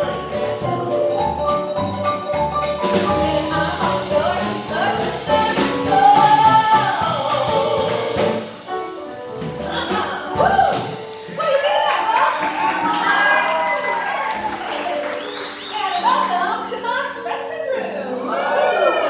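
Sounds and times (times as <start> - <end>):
instrumental accompaniment: 0.0 - 18.4
person singing: 2.9 - 8.6.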